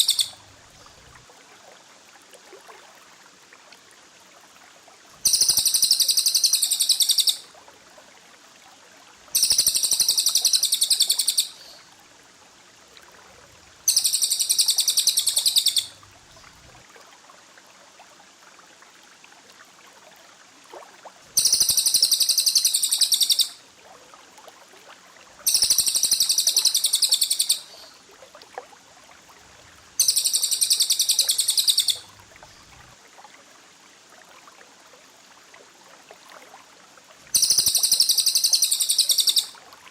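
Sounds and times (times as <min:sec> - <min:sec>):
songbird trilling rapidly: 0:00.0 - 0:00.4, 0:05.2 - 0:07.4, 0:09.4 - 0:11.7, 0:13.9 - 0:16.0, 0:21.4 - 0:23.6, 0:25.5 - 0:27.9, 0:30.0 - 0:32.1, 0:37.4 - 0:39.5.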